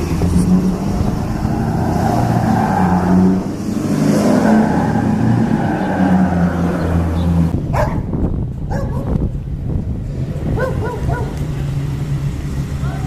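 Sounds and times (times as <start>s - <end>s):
car engine humming: 0.0s - 13.0s
dog barking: 7.7s - 8.1s, 8.7s - 9.2s, 10.6s - 11.4s.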